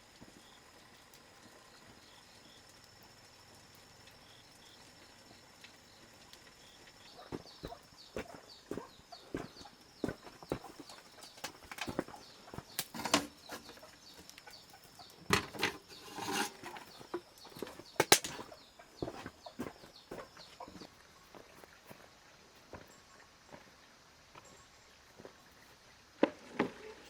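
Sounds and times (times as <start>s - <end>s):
irregular knocks and clatter: 7.3s - 13.9s, 15.2s - 19.8s
scraping: 12.8s - 13.8s, 15.3s - 17.2s.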